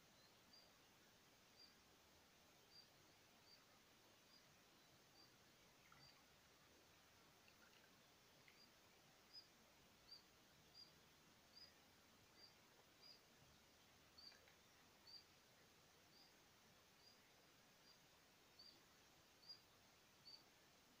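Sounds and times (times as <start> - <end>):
faint high bird chirp: 2.6 - 6.4, 7.4 - 15.3, 17.0 - 20.5.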